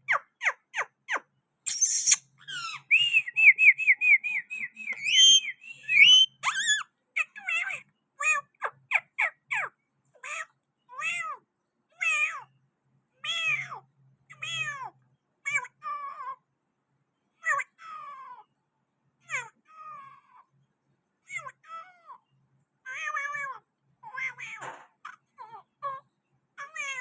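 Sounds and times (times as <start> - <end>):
parrot calling: 0.0 - 10.4.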